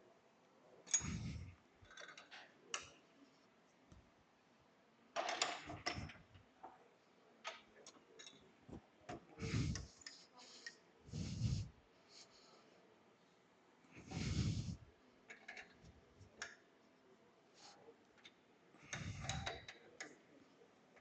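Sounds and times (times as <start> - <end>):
tools clicking and knocking: 0.9 - 3.0, 5.2 - 6.3, 18.2 - 20.2.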